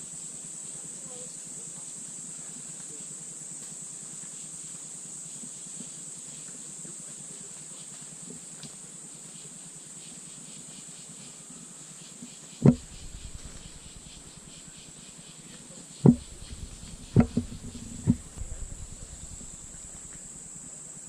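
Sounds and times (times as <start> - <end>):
high-pitched insect drone: 0.0 - 21.0
faint pulsing chirr: 8.9 - 21.0
dull thumps: 12.6 - 14.4, 16.0 - 20.3.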